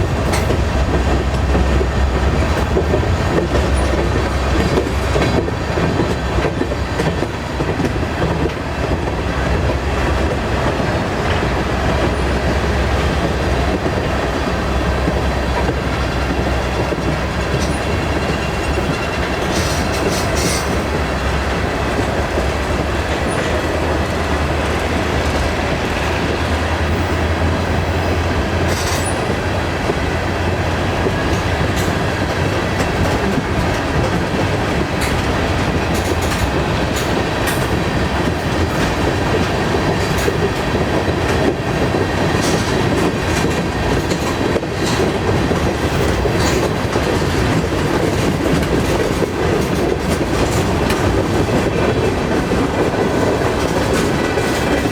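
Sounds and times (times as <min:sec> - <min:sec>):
freight train rumbling on rails: 0:00.0 - 0:54.9.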